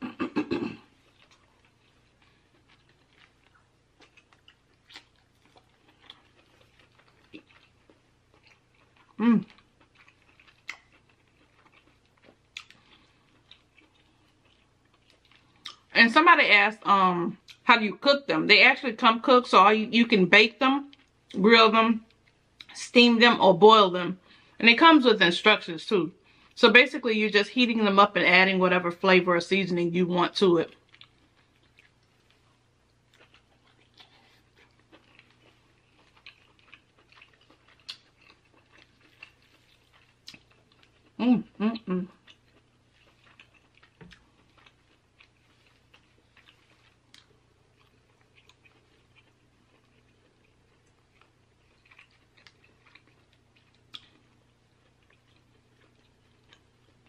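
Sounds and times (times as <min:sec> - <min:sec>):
chewing: 0:00.8 - 0:15.9, 0:30.7 - 0:57.0.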